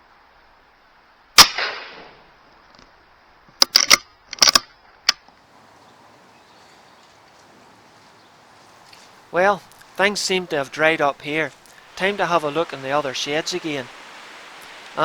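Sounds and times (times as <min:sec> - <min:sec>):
air rifle shot: 0:01.4 - 0:02.2.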